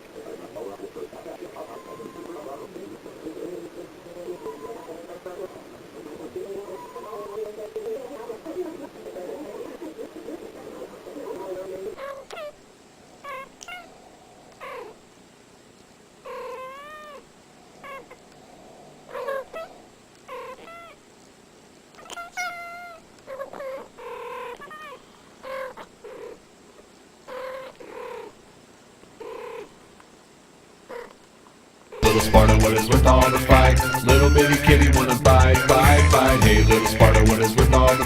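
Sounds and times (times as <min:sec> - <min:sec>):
cat meowing: 0:01.6 - 0:02.3, 0:04.3 - 0:05.0, 0:13.2 - 0:13.9, 0:16.3 - 0:17.2, 0:22.0 - 0:25.9.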